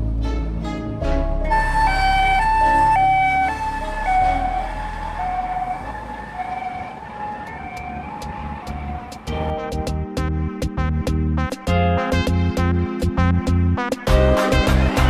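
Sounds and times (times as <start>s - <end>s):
two-tone siren: 1.5s - 9.5s.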